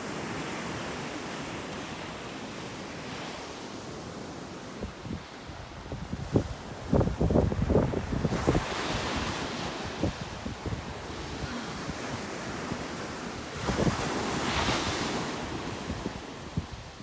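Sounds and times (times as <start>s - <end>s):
wind rumbling on microphone: 4.8s - 17.0s
ocean surf breaking: 7.9s - 16.6s.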